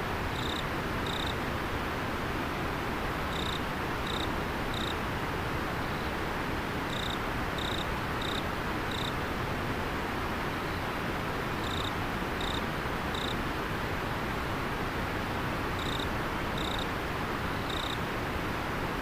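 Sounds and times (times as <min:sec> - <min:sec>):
insect chirping: 0:00.3 - 0:01.3, 0:03.3 - 0:05.0, 0:06.9 - 0:09.1, 0:11.6 - 0:13.4, 0:15.8 - 0:16.8, 0:17.5 - 0:18.0.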